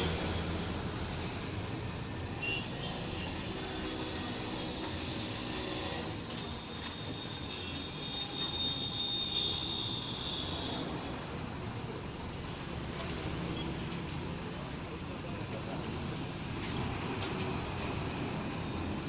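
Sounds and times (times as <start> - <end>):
thin high whine: 5.1 - 10.8.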